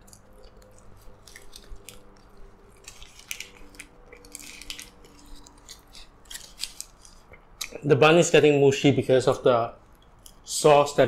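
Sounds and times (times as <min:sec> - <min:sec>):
paper wrapper crinkling: 0:00.0 - 0:07.7
chewing burger: 0:00.0 - 0:07.8.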